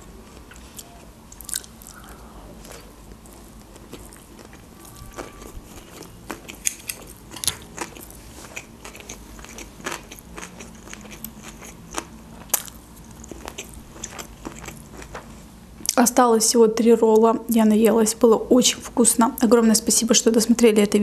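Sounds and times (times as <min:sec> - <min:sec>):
wet chewing with mouth clicks: 0:00.3 - 0:16.0.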